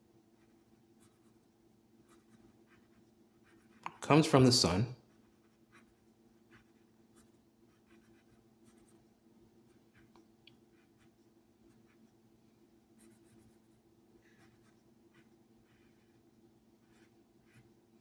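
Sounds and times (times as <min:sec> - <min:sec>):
pen scratching on paper: 0:00.4 - 0:04.0, 0:05.1 - 0:10.1, 0:10.7 - 0:12.1, 0:13.0 - 0:16.2, 0:16.8 - 0:17.8.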